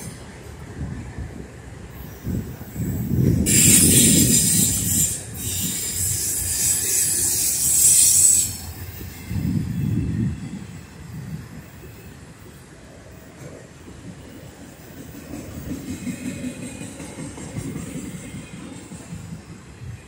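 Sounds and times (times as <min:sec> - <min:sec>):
train wheels rumbling on rails: 0:00.0 - 0:20.0
high wheel squeal: 0:02.0 - 0:10.8.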